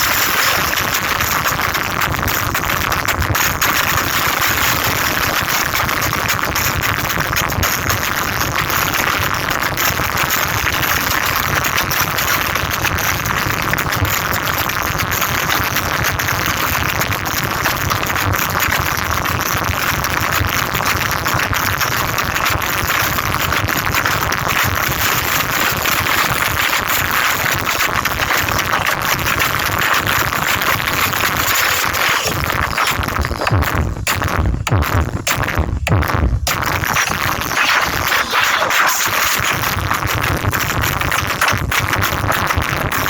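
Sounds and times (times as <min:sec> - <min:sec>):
loud distorted music: 0:00.0 - 0:06.6, 0:25.0 - 0:43.0.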